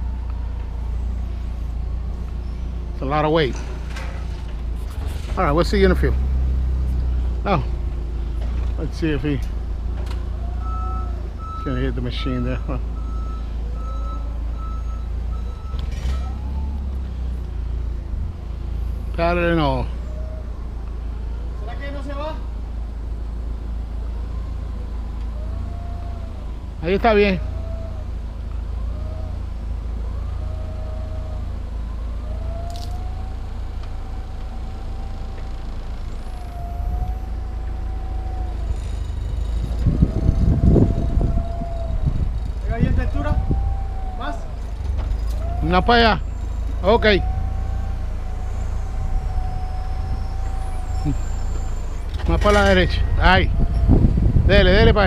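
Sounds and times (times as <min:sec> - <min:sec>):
forklift engine rumble: 0:00.0 - 0:55.0
reversing alarm beeping: 0:10.6 - 0:16.8, 0:45.6 - 0:53.8.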